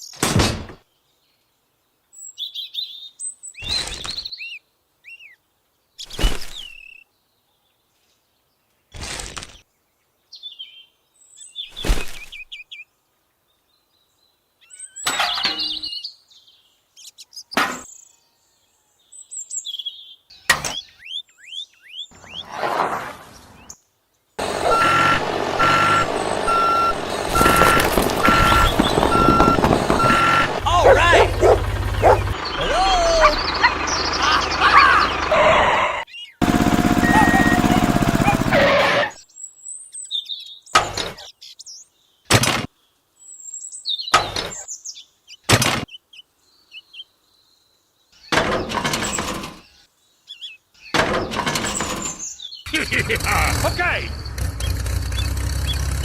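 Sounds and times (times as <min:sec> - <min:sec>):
small birds chirping: 0:00.8 - 0:22.5, 0:23.3 - 0:38.5, 0:39.3 - 0:48.4, 0:49.0 - 0:56.0
clattering burst: 0:24.4 - 0:32.5
reversing alarm beeping: 0:24.4 - 0:33.7, 0:36.8 - 0:38.2
mechanical rumble: 0:24.4 - 0:35.4.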